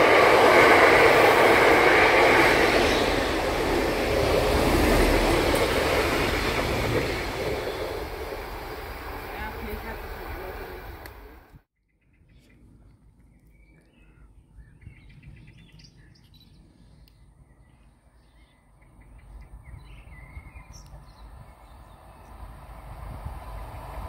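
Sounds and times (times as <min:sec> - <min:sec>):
train approaching: 0:00.0 - 0:11.6, 0:21.3 - 0:24.0.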